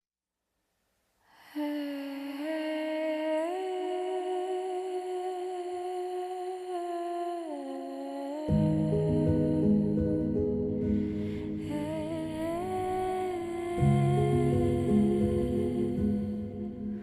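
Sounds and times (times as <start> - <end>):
person humming a slow melody: 1.6 - 17.0
instrumental music: 8.5 - 17.0.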